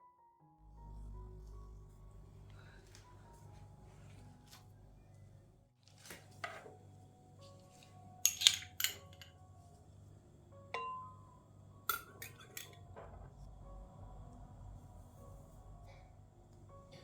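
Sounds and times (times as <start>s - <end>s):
steady low hum: 0.6s - 5.7s
hard objects clinking: 8.2s - 9.4s, 11.9s - 12.8s.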